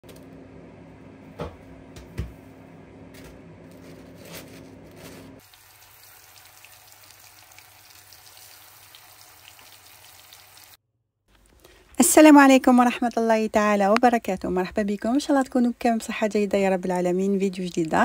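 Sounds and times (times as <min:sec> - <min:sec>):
chicken frying in oil: 0:05.4 - 0:10.8.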